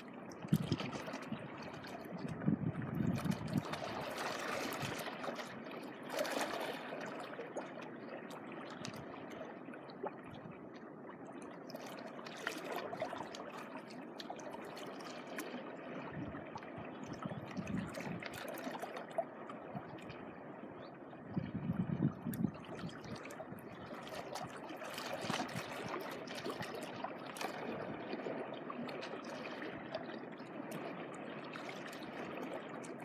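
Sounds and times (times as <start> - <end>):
small waves washing at shore: 0.0 - 10.6, 22.2 - 33.0.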